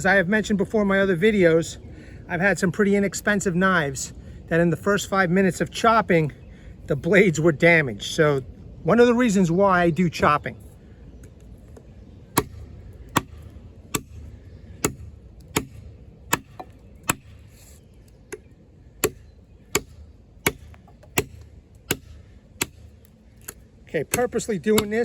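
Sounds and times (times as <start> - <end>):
knife chopping into wood: 12.3 - 17.7, 18.3 - 25.0.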